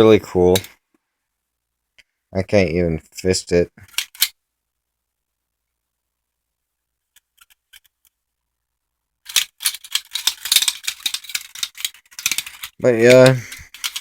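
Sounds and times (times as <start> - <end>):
metal blades clicking and scraping: 9.3 - 14.0.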